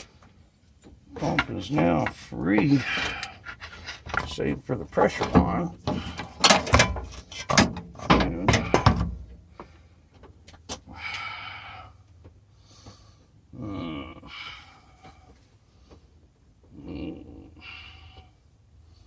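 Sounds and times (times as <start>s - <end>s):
hand tools clanking on metal: 1.1s - 9.2s.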